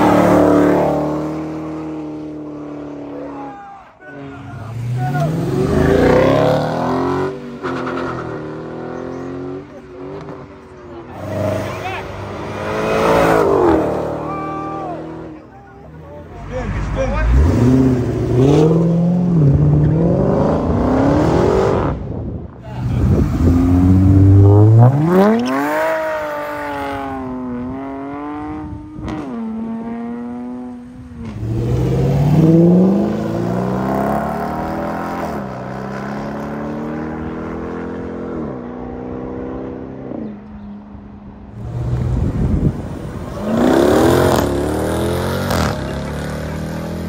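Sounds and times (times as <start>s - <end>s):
car engine accelerating hard: 41.6s - 47.0s.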